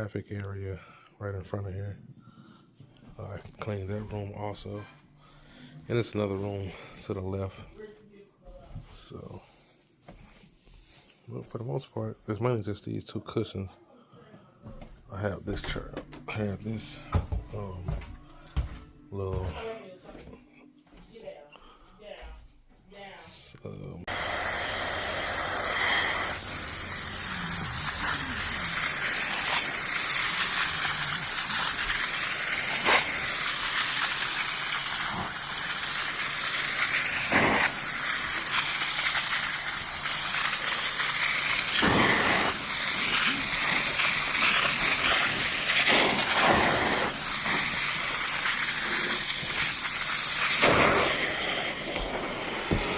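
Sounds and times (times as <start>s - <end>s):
cleaning wand spraying and vacuuming: 24.1s - 52.9s.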